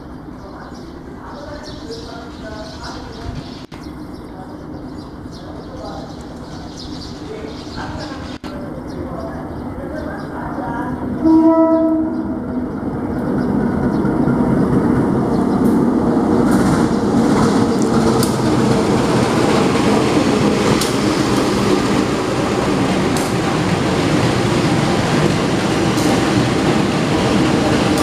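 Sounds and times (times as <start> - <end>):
diesel locomotive engine drone: 0.0 - 28.0
train wheels clicking: 15.5 - 28.0.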